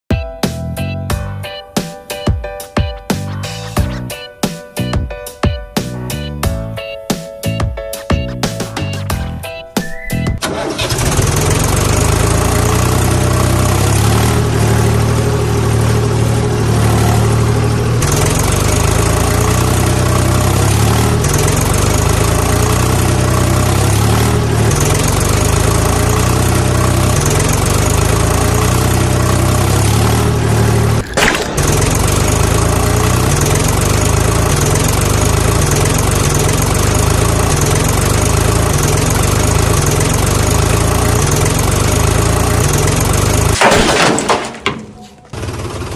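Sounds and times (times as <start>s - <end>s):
tractor diesel engine idling: 9.4s - 45.9s.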